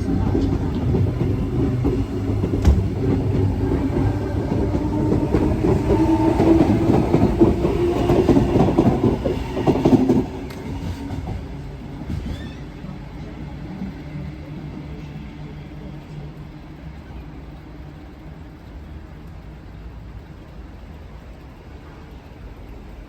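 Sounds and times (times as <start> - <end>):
train wheels clattering on rails: 0.0 - 14.0.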